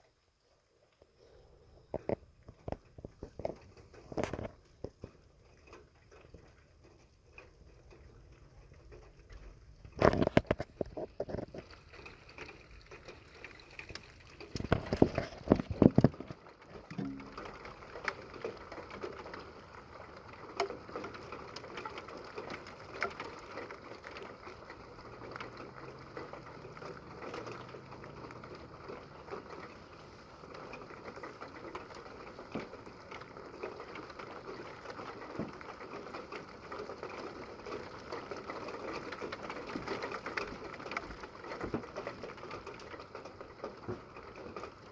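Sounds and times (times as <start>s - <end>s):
rain patter: 0.0s - 44.9s.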